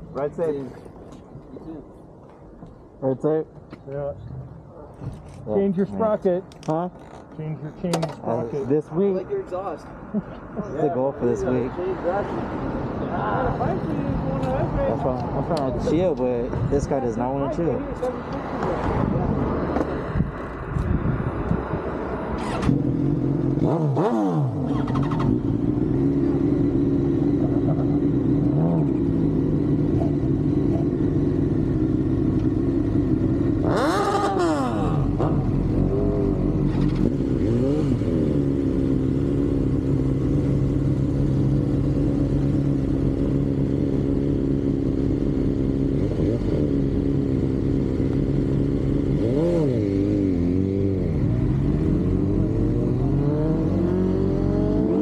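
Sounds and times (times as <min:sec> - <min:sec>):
motorcycle engine revving: 0:22.3 - 0:55.0.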